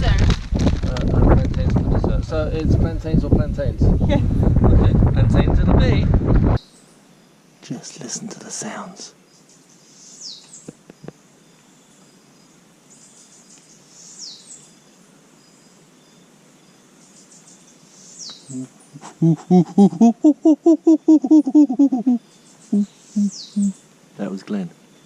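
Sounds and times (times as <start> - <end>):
insect chorus: 6.6 - 25.0
falling whistled bird notes: 22.1 - 23.8.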